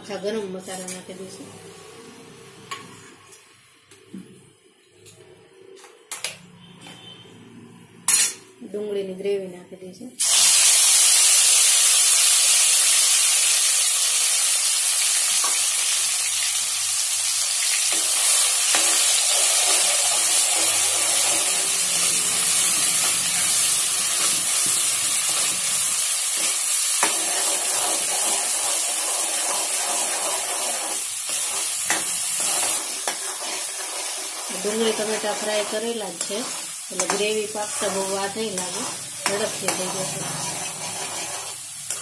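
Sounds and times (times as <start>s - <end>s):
paste sizzling in hot oil: 10.2s - 42.0s.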